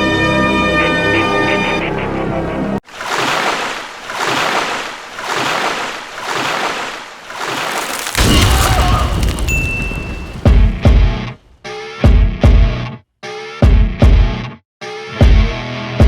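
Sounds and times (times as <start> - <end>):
rushing water surging: 2.8 - 11.6.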